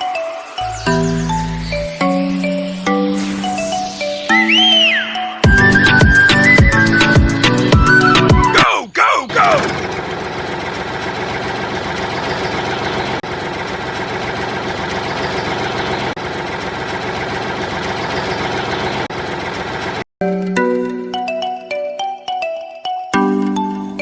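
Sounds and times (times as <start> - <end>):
engine idling: 5.5 - 20.1.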